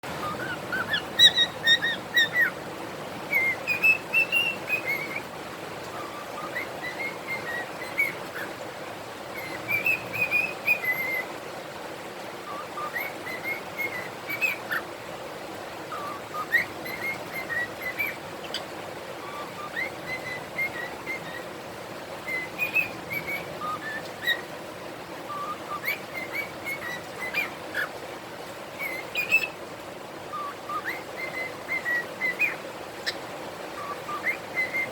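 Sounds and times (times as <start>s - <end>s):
bird chirps: 0.2s - 2.6s, 3.3s - 5.3s, 6.0s - 8.5s, 9.4s - 11.3s, 15.9s - 21.5s, 22.2s - 24.5s, 25.3s - 27.9s, 28.8s - 29.6s, 30.3s - 33.2s
cockatiels whistling and warbling: 0.2s - 2.6s, 3.3s - 5.3s, 5.9s - 8.6s, 9.3s - 11.3s, 12.4s - 14.8s, 15.9s - 21.5s, 22.2s - 24.5s, 25.3s - 27.9s, 28.8s - 29.6s, 30.3s - 33.2s, 33.8s - 34.9s.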